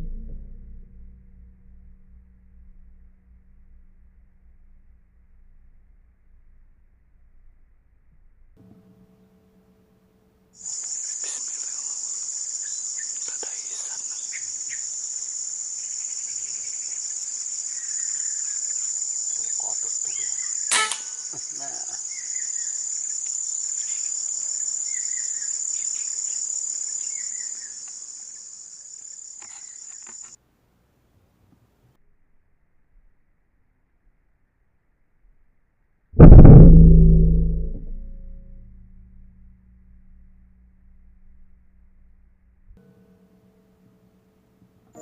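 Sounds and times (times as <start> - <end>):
faint bird chirps: 10.6 - 30.4
high insect drone: 10.6 - 30.4
sharp click: 20.7 - 21.1.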